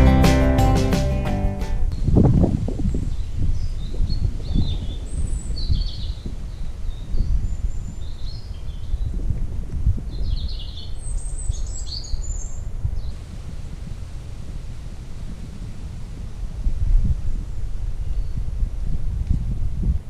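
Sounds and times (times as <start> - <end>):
wind rumble on microphone: 1.5 - 20.0
small songbirds chirping: 2.8 - 9.3, 10.1 - 13.2.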